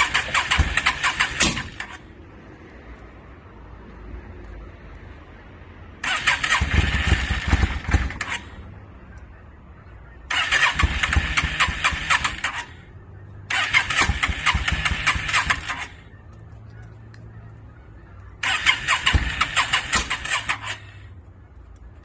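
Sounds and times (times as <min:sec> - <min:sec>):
motorcycle engine cranking: 0:00.0 - 0:02.0, 0:06.0 - 0:08.5, 0:10.3 - 0:12.8, 0:13.5 - 0:16.0, 0:18.4 - 0:21.0.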